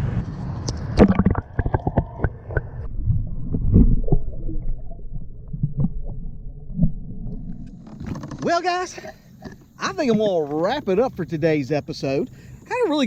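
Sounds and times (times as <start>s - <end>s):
low thumps and rumbling: 0.0s - 8.7s
clicks and knocks in a kayak: 7.6s - 11.1s.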